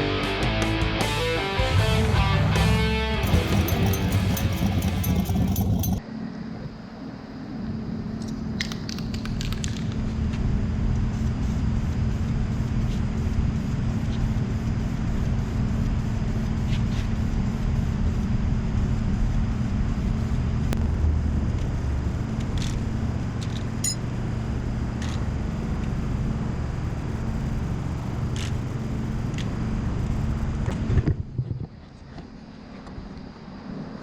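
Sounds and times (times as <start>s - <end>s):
machine motor humming: 3.2s - 6.0s.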